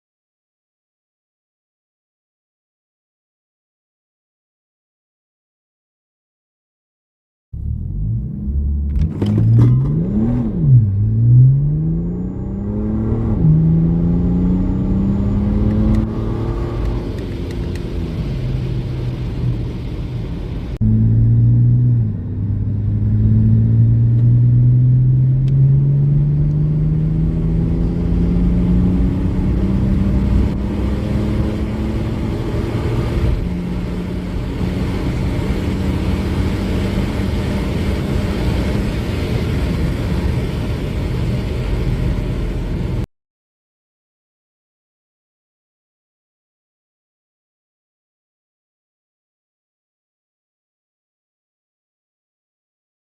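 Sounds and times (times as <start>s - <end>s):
diesel car engine accelerating: 7.6s - 43.1s.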